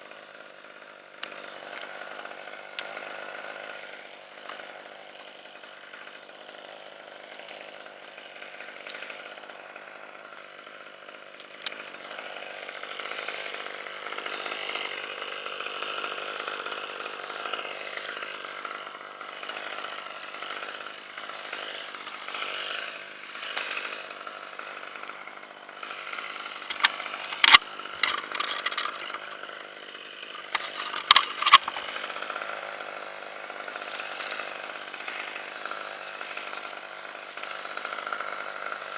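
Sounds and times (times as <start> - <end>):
chainsaw cutting wood: 0.4 - 38.9
sharp cracks or knocks: 30.3 - 32.0.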